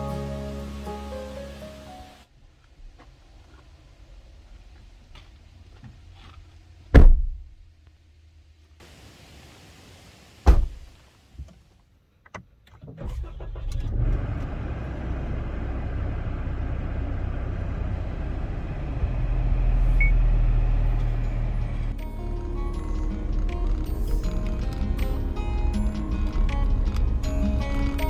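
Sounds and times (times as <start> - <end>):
car engine rumbling: 0.0 - 9.4, 12.8 - 28.0
car door thudding shut: 6.9 - 7.6, 10.4 - 10.9.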